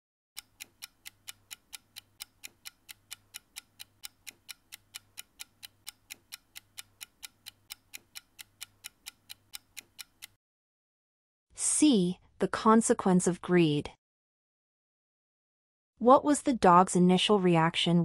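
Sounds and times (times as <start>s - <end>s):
clock ticking: 0.4s - 10.4s.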